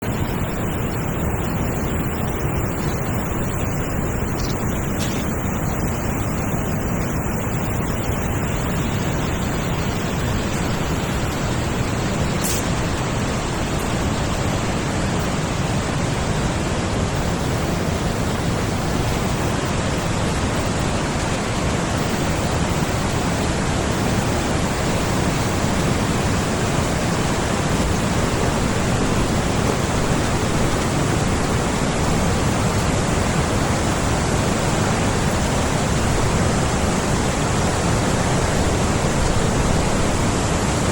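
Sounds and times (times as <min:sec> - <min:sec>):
stream rushing: 0:00.0 - 0:40.9.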